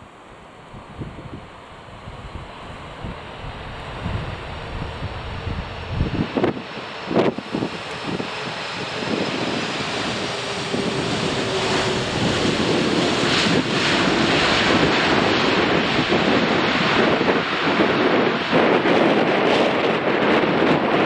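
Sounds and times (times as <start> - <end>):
jet engine noise: 0.0 - 21.0
wind buffeting microphone: 0.6 - 21.0.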